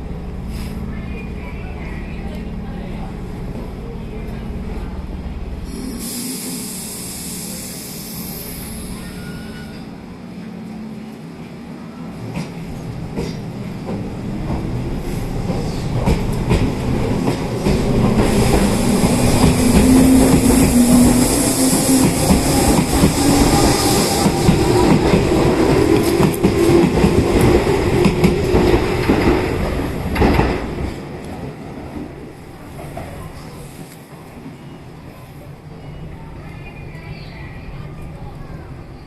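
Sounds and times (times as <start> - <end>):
hiss: 5.7 - 9.6
train motor hum: 12.2 - 31.4.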